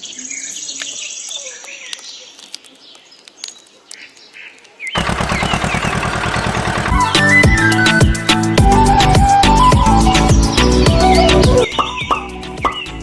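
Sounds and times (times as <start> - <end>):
birds chirping faintly: 0.0 - 13.0
outdoor ambience: 0.0 - 13.0
loud electronic music: 6.8 - 13.0.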